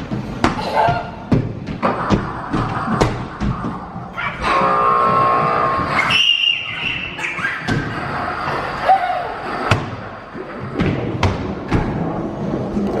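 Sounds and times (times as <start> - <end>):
thumps and knocks: 0.0 - 4.1
steady background din: 0.0 - 13.0.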